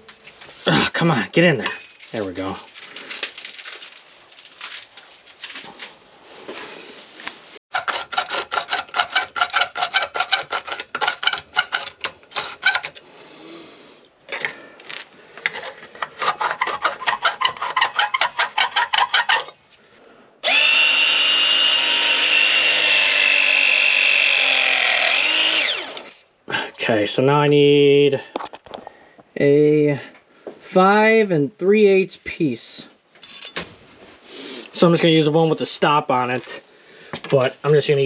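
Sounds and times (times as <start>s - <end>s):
power tool motor whining: 20.4s - 26.2s.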